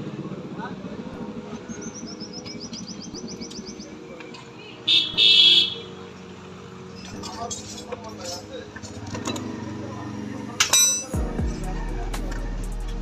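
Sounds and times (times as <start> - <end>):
bird trilling chirps: 1.6 - 4.0.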